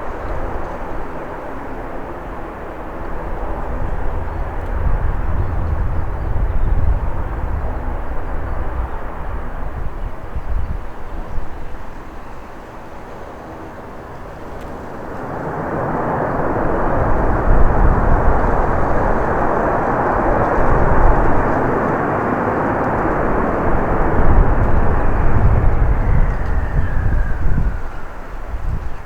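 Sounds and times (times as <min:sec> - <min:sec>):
falling jet whine: 0:00.0 - 0:29.0
jet engines passing close: 0:00.0 - 0:29.0.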